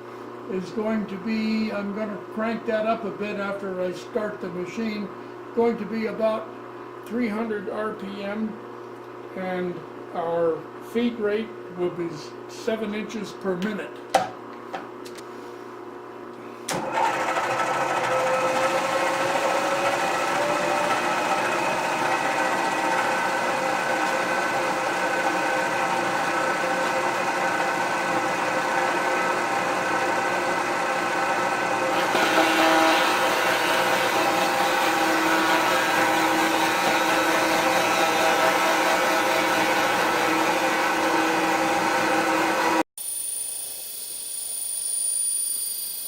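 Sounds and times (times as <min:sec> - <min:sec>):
milling machine whining: 0:16.7 - 0:46.0.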